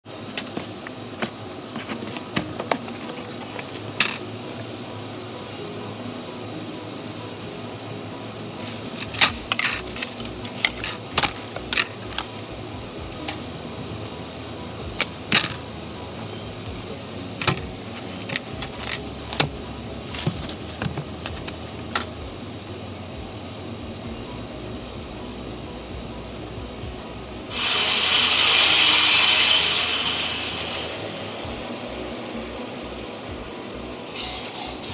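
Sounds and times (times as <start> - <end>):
plastic boards clattering: 0.3 - 4.2, 8.6 - 12.4, 15.0 - 15.6, 17.4 - 22.1
plastic bag handled: 16.2 - 21.8
faint high pulsing beep: 19.5 - 25.8
hiss of air or steam: 27.5 - 31.4, 34.1 - 34.9.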